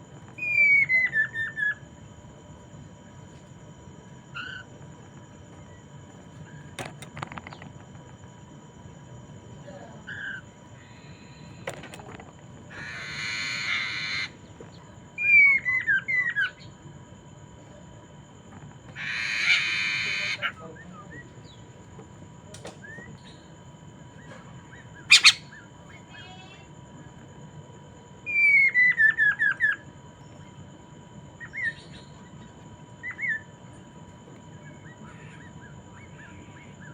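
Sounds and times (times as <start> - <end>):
harsh rasping bird squawks: 12.7 - 14.4, 18.9 - 20.6, 24.9 - 25.7
sharp bird call: 25.1 - 25.5.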